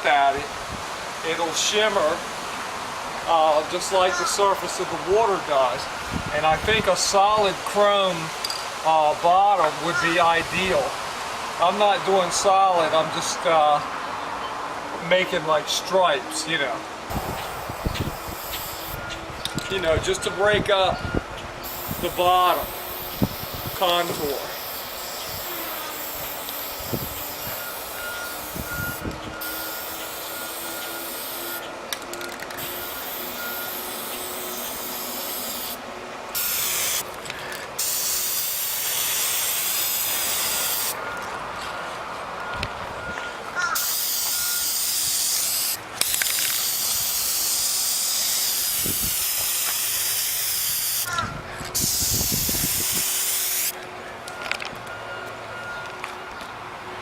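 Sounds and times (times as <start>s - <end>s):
spray paint can hissing: 17.1s - 19.0s, 21.6s - 31.7s, 32.5s - 37.2s, 37.8s - 41.0s, 43.8s - 53.8s.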